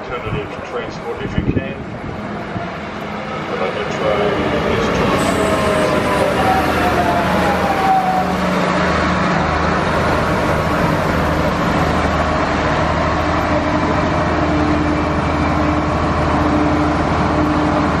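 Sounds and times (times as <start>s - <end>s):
railcar engine drone: 0.0s - 18.0s
train wheel noise: 0.0s - 18.0s.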